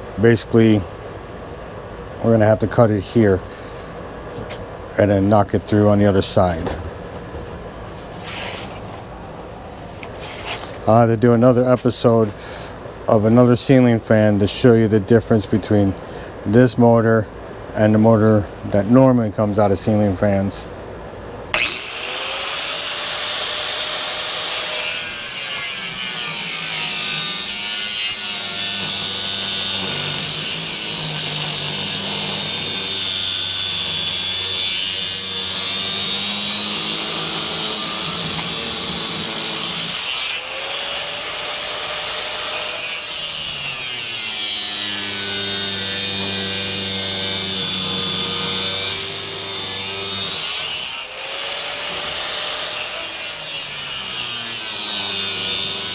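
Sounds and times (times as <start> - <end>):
power tool cutting metal: 21.5 - 55.9.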